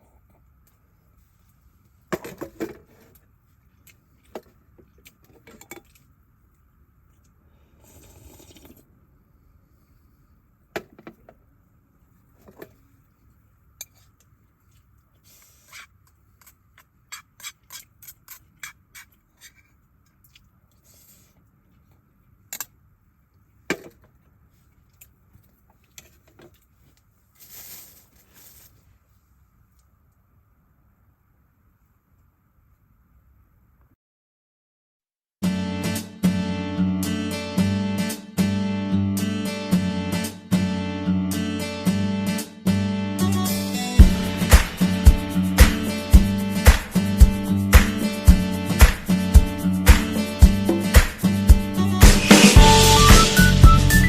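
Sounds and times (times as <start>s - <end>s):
brief rustle: 25.7s - 29.0s.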